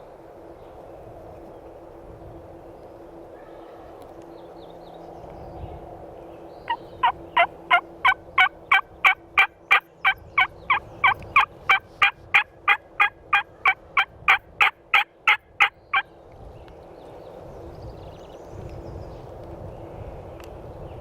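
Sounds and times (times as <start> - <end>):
turkey call yelps: 6.7 - 16.0.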